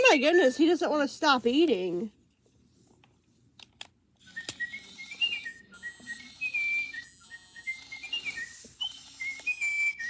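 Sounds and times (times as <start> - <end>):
robotic bird toy chirping: 4.2 - 10.0.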